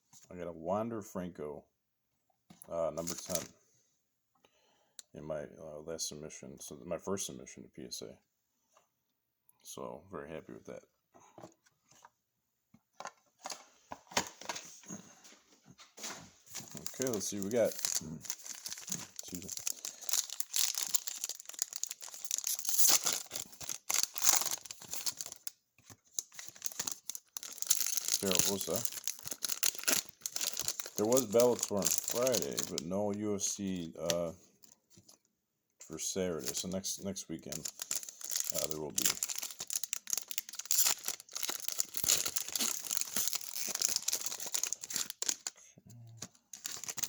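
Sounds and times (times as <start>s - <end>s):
plastic wrapper tearing and crumpling: 3.0s - 3.5s, 16.6s - 34.7s, 37.5s - 45.6s, 46.4s - 47.0s.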